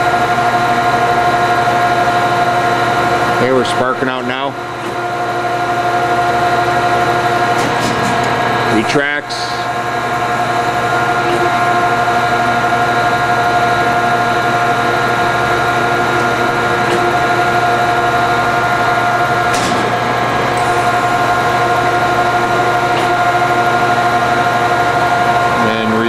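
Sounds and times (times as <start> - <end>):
grinding machine whine: 0.0 - 26.0.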